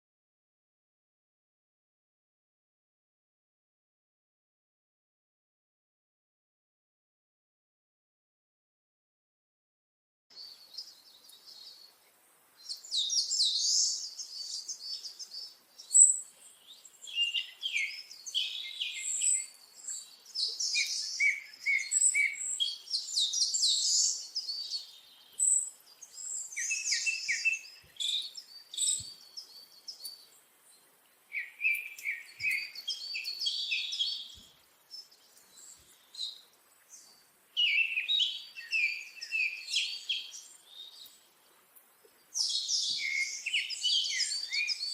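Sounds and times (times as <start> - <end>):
songbird chirping and twittering: 10.3 - 44.9.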